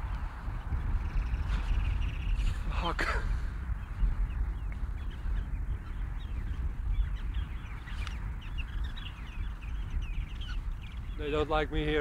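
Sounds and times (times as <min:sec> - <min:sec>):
bird alarm calls: 0:04.3 - 0:11.6.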